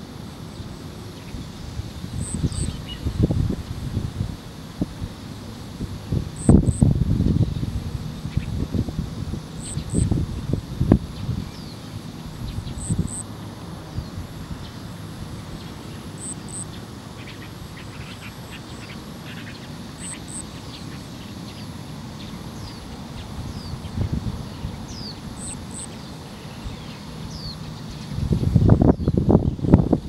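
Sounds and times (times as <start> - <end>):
small birds calling: 0.0 - 3.5, 5.3 - 8.7, 9.3 - 30.0
wind rumble on microphone: 0.0 - 15.7, 22.6 - 25.8, 26.4 - 30.0.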